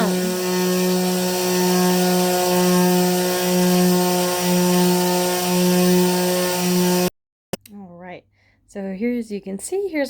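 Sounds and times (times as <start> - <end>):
rotary tool grinding crystal: 0.0 - 7.1.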